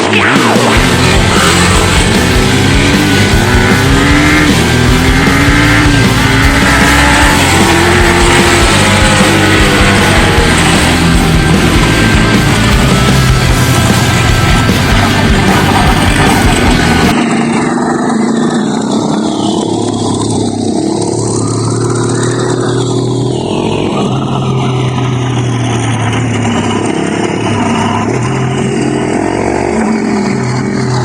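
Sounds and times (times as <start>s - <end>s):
music: 0.0s - 17.2s
dirt bike engine revving: 0.0s - 31.0s.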